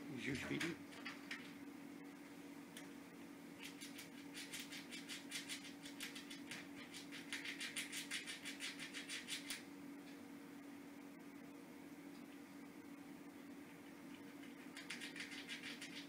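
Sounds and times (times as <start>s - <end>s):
squirrel gnawing nut shell: 3.6s - 9.7s, 13.8s - 16.0s.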